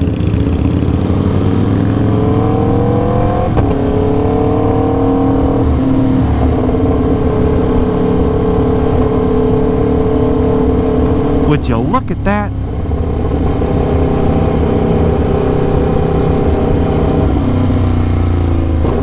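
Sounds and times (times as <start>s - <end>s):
motorcycle engine accelerating: 0.0s - 5.6s.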